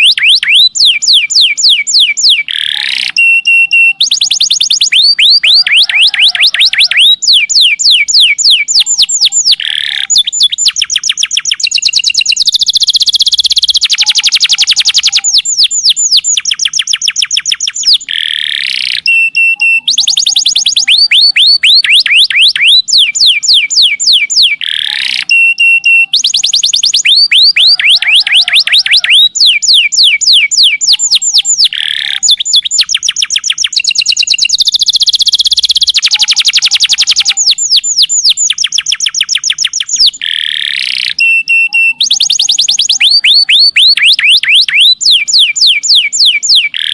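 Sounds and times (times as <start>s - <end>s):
canary singing trills: 0.0s - 46.9s.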